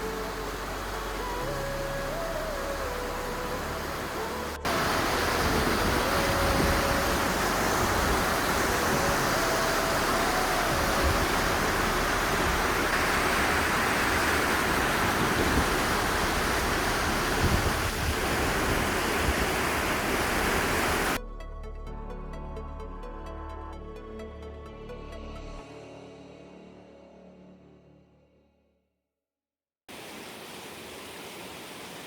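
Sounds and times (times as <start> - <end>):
music: 0.0 - 12.9, 21.2 - 28.9
fast-flowing river rushing: 0.0 - 21.2.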